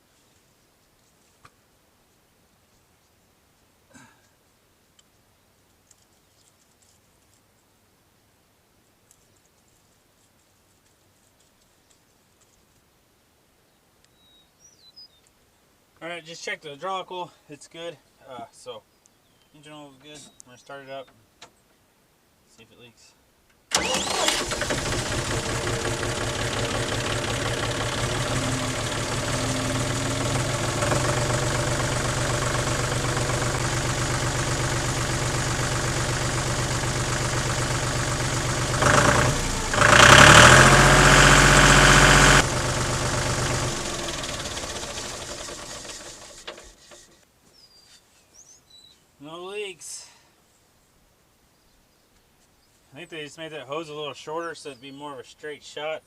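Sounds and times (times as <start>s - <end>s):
tractor diesel engine idling: 23.7s - 47.1s.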